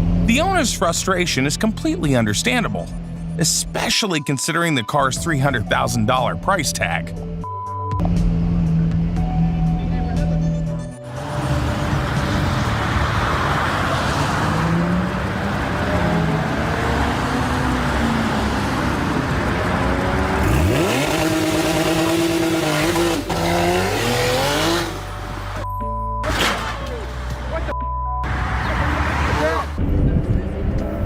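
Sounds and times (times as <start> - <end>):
car engine revving hard: 11.1 - 25.1.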